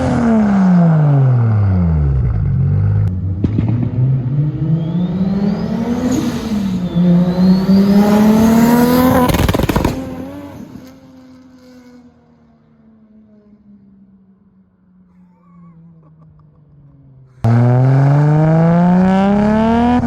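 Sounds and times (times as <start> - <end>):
car accelerating hard: 0.0 - 11.2, 17.3 - 20.0
exhaust bangs: 2.2 - 10.9.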